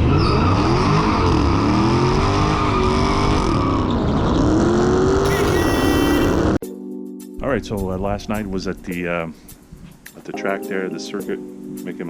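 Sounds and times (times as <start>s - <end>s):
car engine revving: 0.4s - 6.6s.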